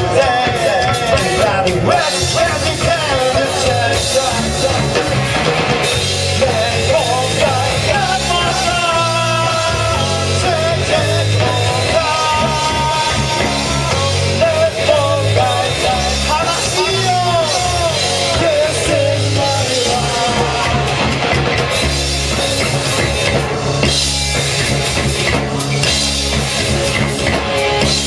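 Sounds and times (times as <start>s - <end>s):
person singing: 0.0s - 5.3s, 6.3s - 21.4s
bass: 0.0s - 28.0s
drums: 0.0s - 28.0s
guitar: 0.0s - 28.0s.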